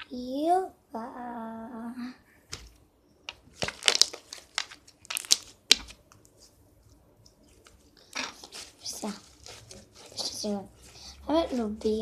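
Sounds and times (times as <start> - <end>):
slime popping and crackling: 3.3 - 6.4, 7.3 - 12.0.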